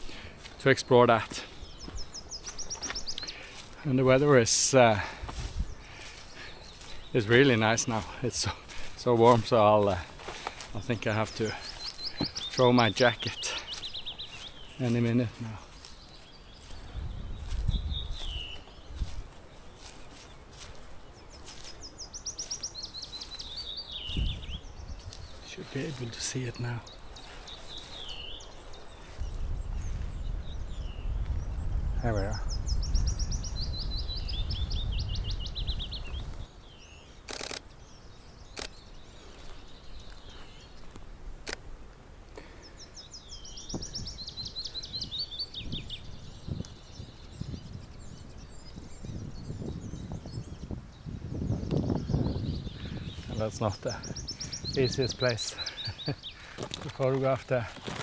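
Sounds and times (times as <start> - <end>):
songbirds singing: 0.0 - 58.0
camera shutter clicks: 37.3 - 37.6.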